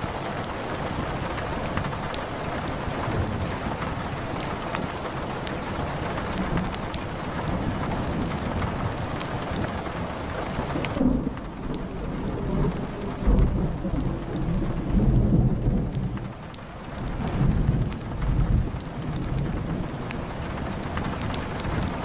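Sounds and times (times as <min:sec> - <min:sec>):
rain pattering on window and roof: 0:00.0 - 0:22.0
wood fire crackling: 0:00.0 - 0:22.0
rolling thunder: 0:06.0 - 0:22.0.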